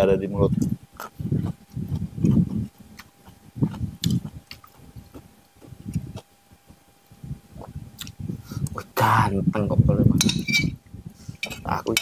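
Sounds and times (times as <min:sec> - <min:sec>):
person chewing food: 0:00.5 - 0:06.8, 0:07.6 - 0:08.8.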